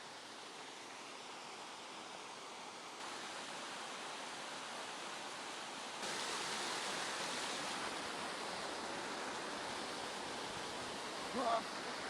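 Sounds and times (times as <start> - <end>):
rushing mountain stream: 0.0 - 12.0.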